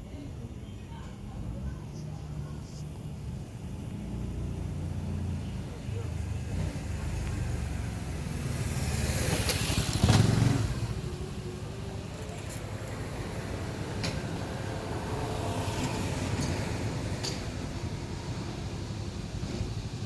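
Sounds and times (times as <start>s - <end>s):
low traffic rumble: 0.0s - 20.0s
vehicle passing by: 3.9s - 18.1s.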